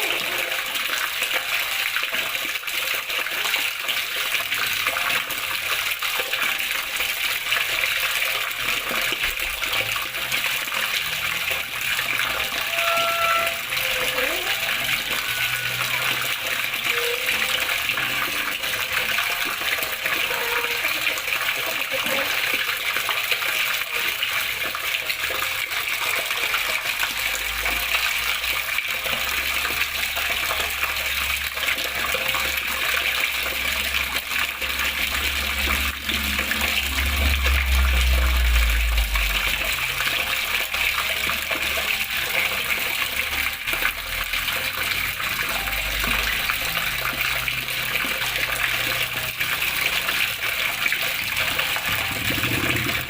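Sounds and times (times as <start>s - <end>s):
water rushing and splashing: 0.0s - 53.0s
low rumble: 51.8s - 53.0s.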